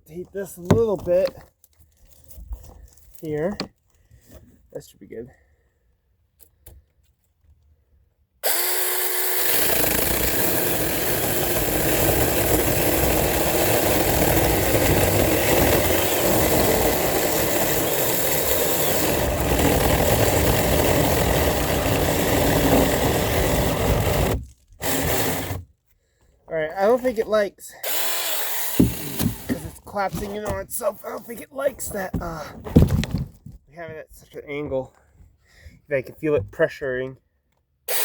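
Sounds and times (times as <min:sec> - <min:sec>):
mini chainsaw cutting log: 0:08.4 - 0:25.7, 0:27.8 - 0:30.6.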